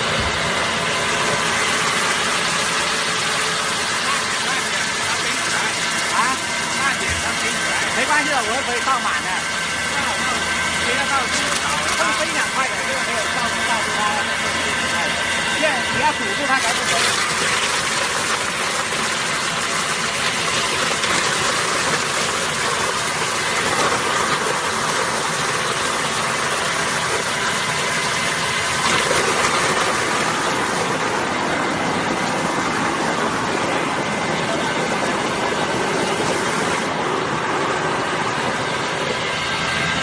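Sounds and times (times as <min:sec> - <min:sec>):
grinding machine running: 0:00.0 - 0:40.0.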